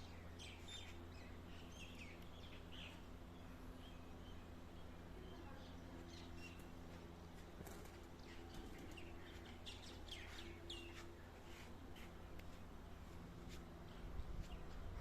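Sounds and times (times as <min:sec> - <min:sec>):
birds chirping: 0:00.0 - 0:07.0, 0:08.1 - 0:11.3
faint low hum: 0:00.0 - 0:15.0.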